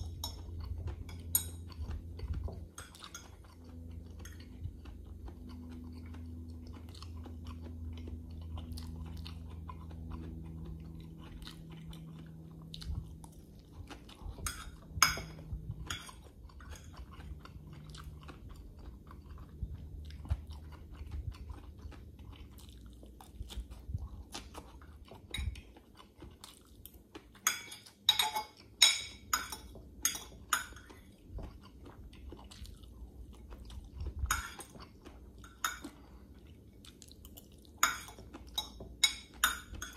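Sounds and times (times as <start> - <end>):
person chewing and smacking: 0.0 - 39.9
fork clinking on glass bowl: 14.4 - 16.2, 27.4 - 30.9, 37.8 - 39.9.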